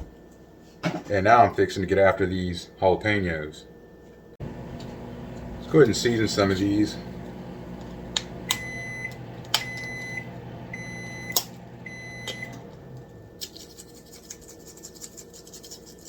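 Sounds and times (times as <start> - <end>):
steady low hum: 0.0 - 16.0
appliance high beeps: 4.5 - 13.4.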